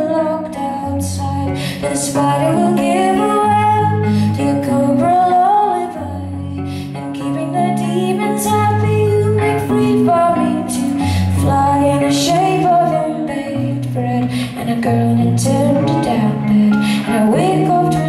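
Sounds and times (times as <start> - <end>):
woman singing: 0.0 - 18.0.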